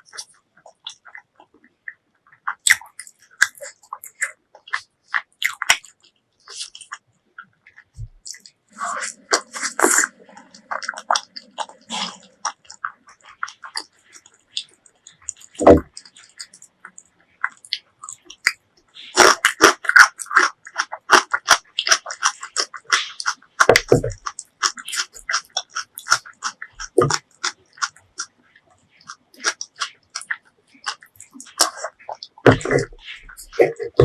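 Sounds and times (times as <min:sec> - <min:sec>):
chewing clicks: 0:00.0 - 0:34.0.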